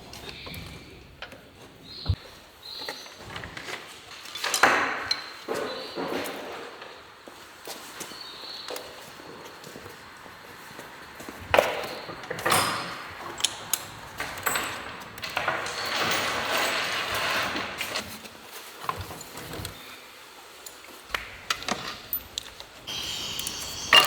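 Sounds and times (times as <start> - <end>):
scraping and rustling: 5.2 - 24.0
metal parts clinking: 12.2 - 18.2, 20.6 - 24.0.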